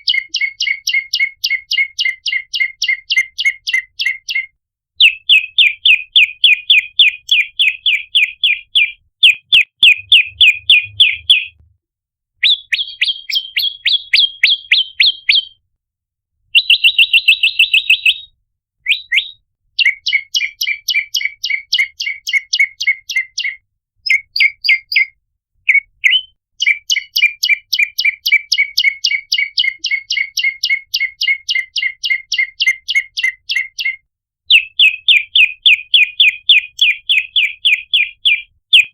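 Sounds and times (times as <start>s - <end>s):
buzzy bird trill: 0.0s - 11.6s, 12.4s - 15.6s.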